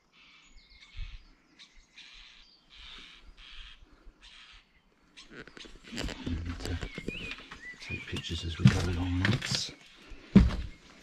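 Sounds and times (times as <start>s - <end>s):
short raspy bird calls: 0.1s - 8.4s.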